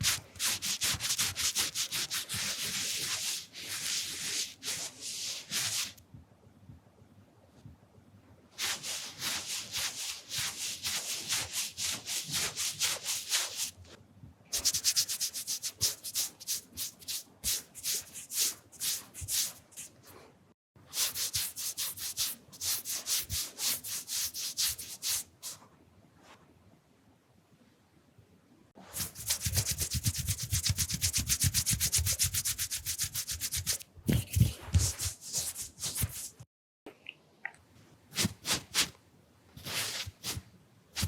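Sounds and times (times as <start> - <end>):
rubbing against microphone: 28.9 - 36.4, 39.6 - 40.4.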